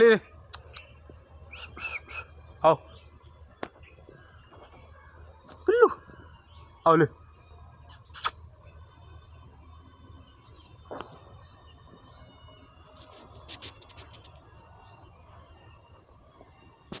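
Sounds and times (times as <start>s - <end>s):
faint outdoor ambience: 0.0s - 17.0s
small birds chirping: 0.0s - 17.0s
short clicks: 0.5s - 0.9s.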